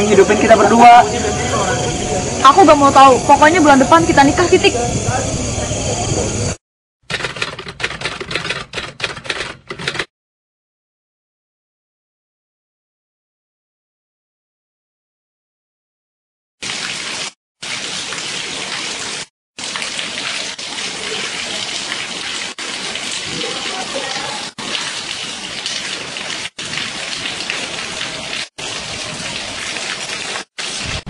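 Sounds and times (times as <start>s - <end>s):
steady rain falling: 16.7s - 31.0s.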